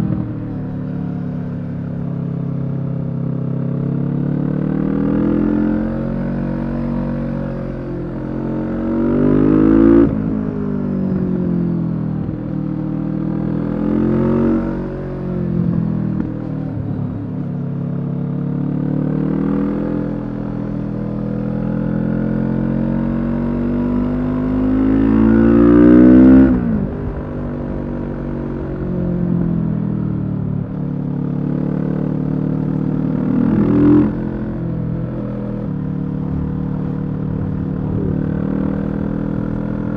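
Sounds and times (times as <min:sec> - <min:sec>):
motorcycle engine revving: 0:18.6 - 0:39.9.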